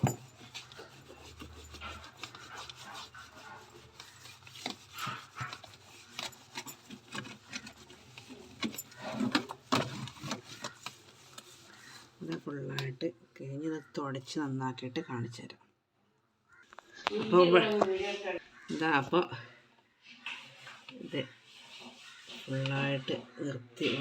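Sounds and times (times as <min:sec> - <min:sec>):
scrubbing inside refrigerator: 0:00.0 - 0:12.3, 0:20.1 - 0:23.4.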